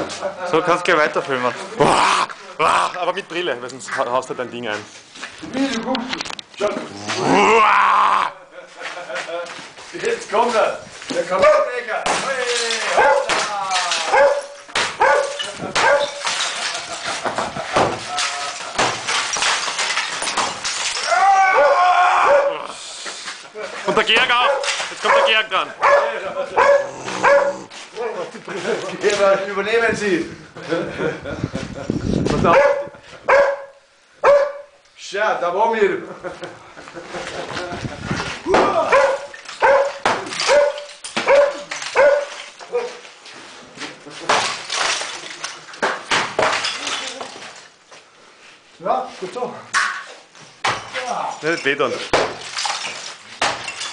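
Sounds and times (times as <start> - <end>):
dog barking: 11.4 - 11.7, 13.0 - 13.3, 14.1 - 16.2, 21.6 - 22.6, 24.4 - 27.7, 32.5 - 34.7, 38.9 - 43.0
sharp cracks or knocks: 12.0 - 21.4, 38.2 - 43.0, 44.2 - 47.7, 52.1 - 53.9.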